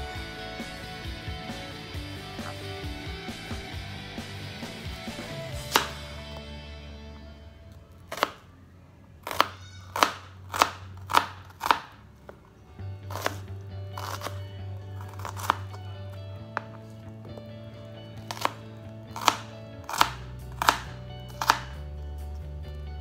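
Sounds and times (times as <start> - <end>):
knife slicing onion on cutting board: 9.2 - 11.9, 13.1 - 14.4, 15.0 - 15.7, 18.2 - 21.8.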